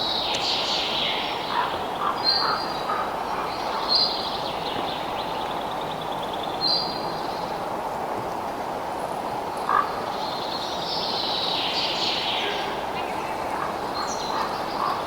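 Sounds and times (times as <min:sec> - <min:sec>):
steady background hiss: 0:00.0 - 0:15.0
birds chirping: 0:10.1 - 0:15.0.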